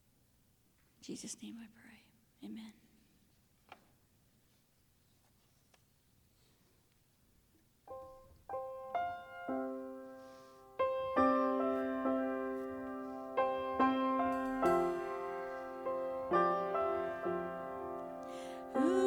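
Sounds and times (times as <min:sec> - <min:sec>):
piano chords: 0:07.9 - 0:19.0.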